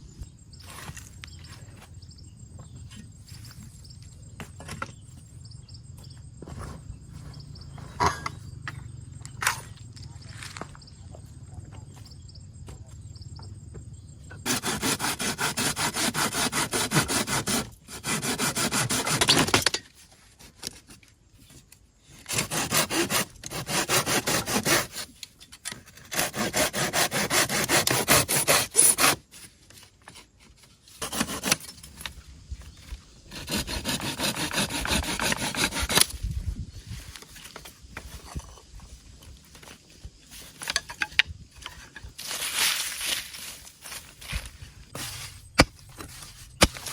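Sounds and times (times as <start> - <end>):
hand saw cutting wood: 14.4 - 19.8, 22.3 - 25.2, 26.0 - 29.3, 31.0 - 32.1, 33.3 - 36.2, 45.0 - 46.9.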